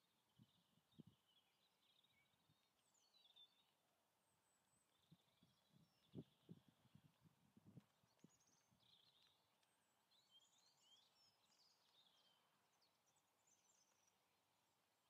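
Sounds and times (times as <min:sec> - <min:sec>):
birds chirping: 0:07.8 - 0:14.2.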